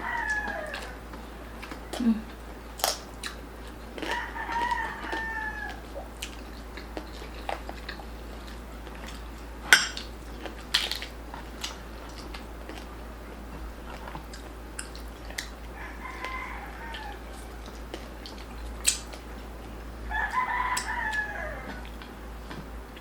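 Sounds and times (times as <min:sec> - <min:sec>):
rooster crowing: 0:00.0 - 0:01.1, 0:04.0 - 0:06.0, 0:15.7 - 0:17.7, 0:20.0 - 0:21.9
crunchy chewing: 0:00.0 - 0:23.0.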